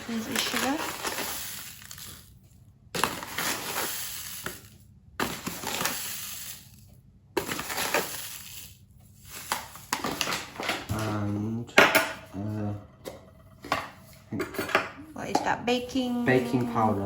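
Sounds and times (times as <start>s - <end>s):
spoon scooping sugar: 0.0s - 2.4s, 3.0s - 10.4s.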